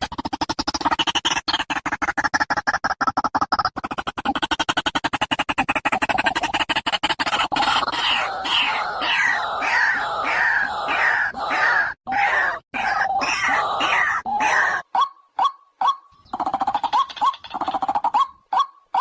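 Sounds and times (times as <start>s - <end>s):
waterhen calling: 7.3s - 19.0s.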